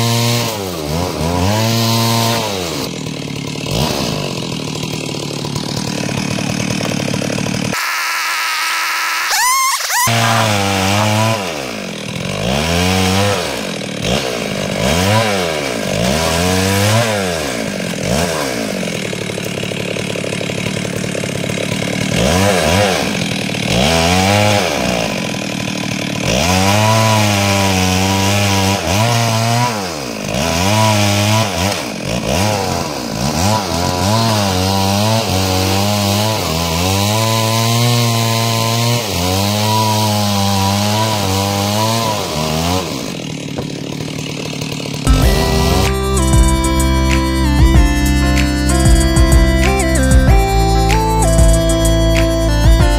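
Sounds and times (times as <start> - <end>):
chainsaw cutting timber: 0.0 - 52.9.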